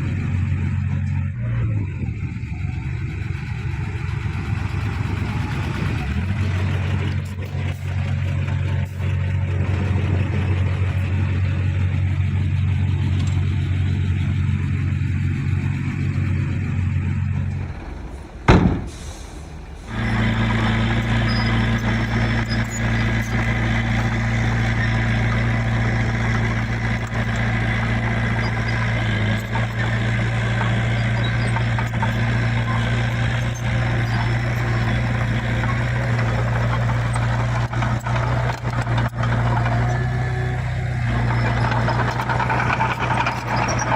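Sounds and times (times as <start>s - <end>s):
heavy diesel engine running: 0.0s - 43.9s
sharp knock: 18.5s - 19.2s.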